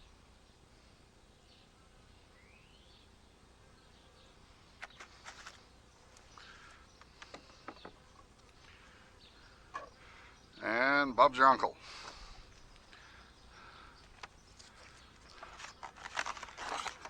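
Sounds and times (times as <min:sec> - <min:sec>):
beehive equipment clicks and taps: 0:06.1 - 0:08.7.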